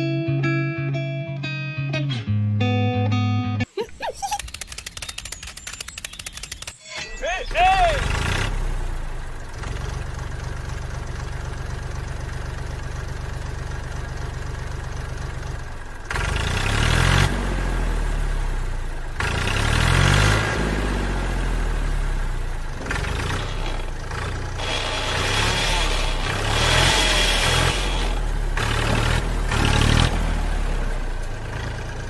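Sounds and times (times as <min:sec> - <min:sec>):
small tractor engine revving: 0:07.5 - 0:32.0.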